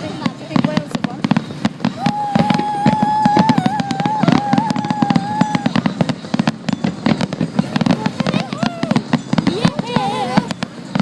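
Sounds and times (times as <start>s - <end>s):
fireworks crackling and popping: 0.0s - 11.0s
held high tone: 1.9s - 6.2s.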